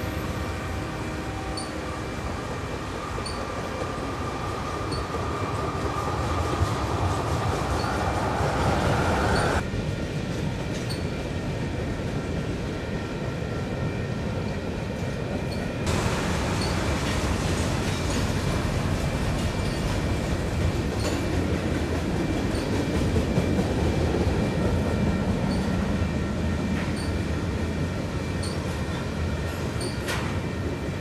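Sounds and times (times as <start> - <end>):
steel wheels rumbling on rails: 0.0 - 31.0
high wheel squeal: 1.5 - 1.9, 3.2 - 3.6, 7.6 - 9.6.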